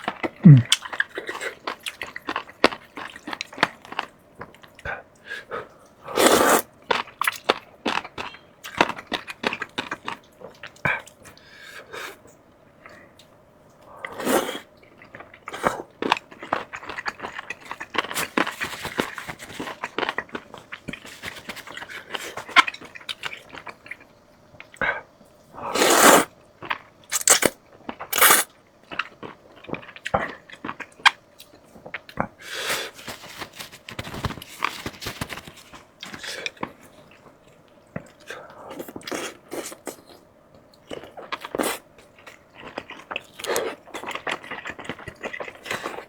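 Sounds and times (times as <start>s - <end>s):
person crunching fried chicken: 25.8s - 31.1s.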